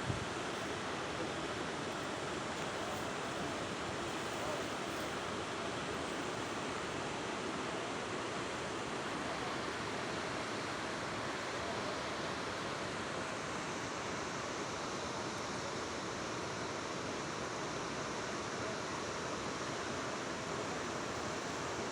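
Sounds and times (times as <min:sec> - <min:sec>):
floodwater rushing: 0:00.0 - 0:11.5.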